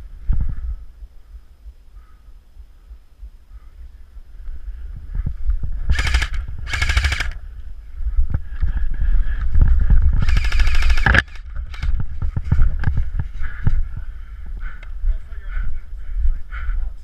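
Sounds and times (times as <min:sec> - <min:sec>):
airsoft gun bursts: 0:05.9 - 0:07.4, 0:10.2 - 0:11.9.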